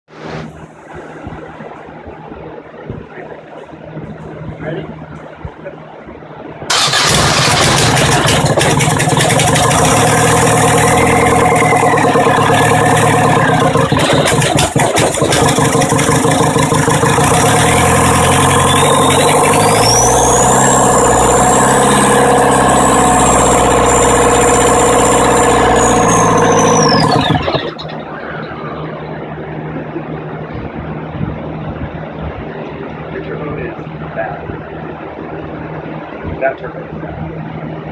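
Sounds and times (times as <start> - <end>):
diesel engine revving: 6.7 - 29.3
turbo whistle: 24.8 - 27.5.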